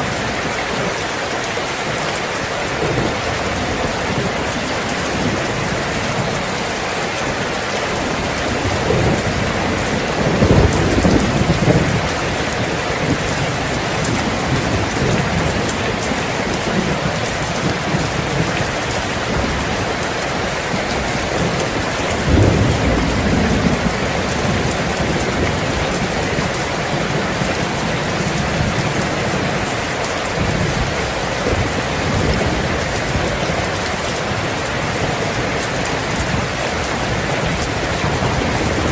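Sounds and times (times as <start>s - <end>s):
heavy rain falling: 0.0s - 38.9s
low rolls of thunder: 8.0s - 19.7s, 20.8s - 29.5s.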